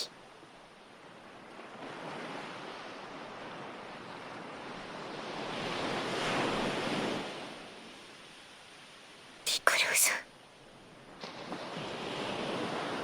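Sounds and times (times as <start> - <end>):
ocean waves on shore: 0.0 - 9.3, 10.9 - 13.0.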